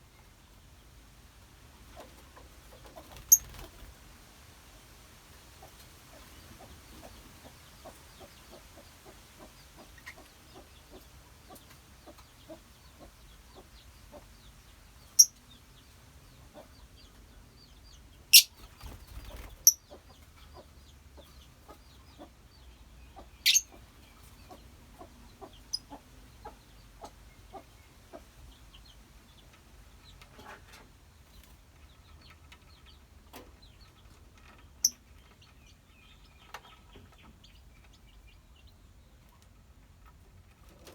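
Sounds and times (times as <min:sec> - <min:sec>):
lovebirds chattering clicks: 0:18.4 - 0:19.8, 0:23.4 - 0:23.7.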